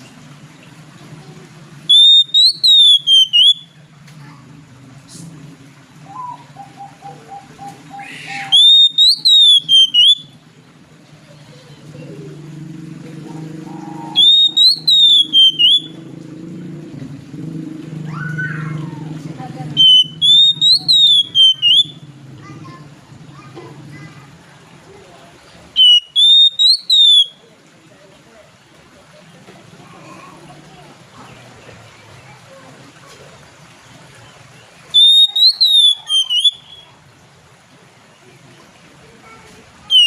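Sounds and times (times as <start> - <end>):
bird short chirps: 1.9 - 3.6, 8.4 - 10.2, 14.2 - 15.9, 25.8 - 27.3, 35.0 - 36.9
bird whistled song phrases: 1.9 - 3.8, 6.0 - 10.4, 13.7 - 16.0, 19.8 - 22.1, 25.8 - 27.4, 34.9 - 37.0.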